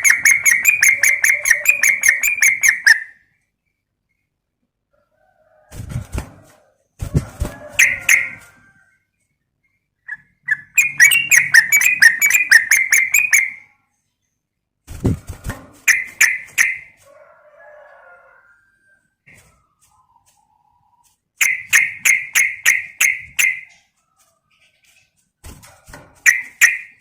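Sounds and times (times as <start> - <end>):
bulbul chattering song: 0.0 - 3.3, 9.7 - 13.8, 15.9 - 17.0, 21.4 - 23.8, 26.2 - 27.0.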